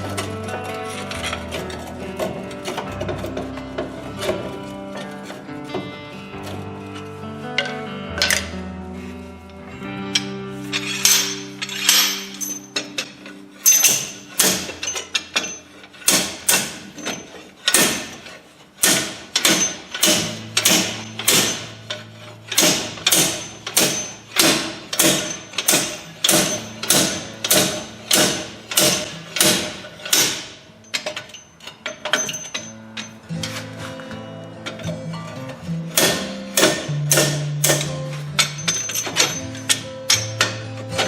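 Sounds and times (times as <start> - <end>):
background music with low notes: 0.0 - 18.2, 18.8 - 41.0
sharp ringing knocks: 18.8 - 21.8, 22.6 - 31.4.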